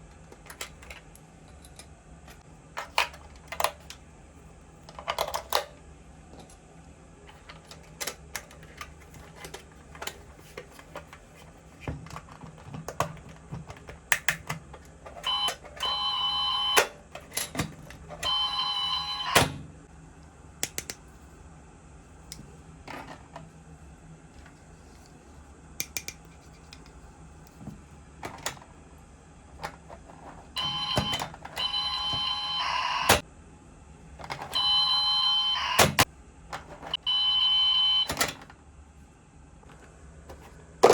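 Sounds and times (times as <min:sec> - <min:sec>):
toy electronic tone: 0:15.2 - 0:16.9, 0:18.2 - 0:19.5, 0:30.6 - 0:33.2, 0:34.6 - 0:36.0, 0:37.0 - 0:38.1.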